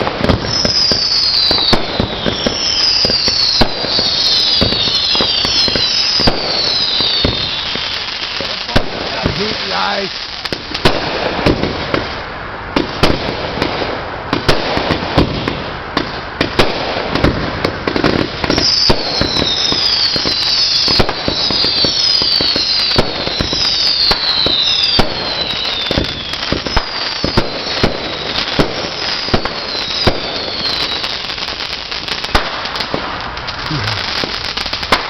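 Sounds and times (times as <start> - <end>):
fireworks crackling and banging: 0.0 - 35.0
firework whistles falling in pitch: 0.4 - 8.3, 18.5 - 31.4.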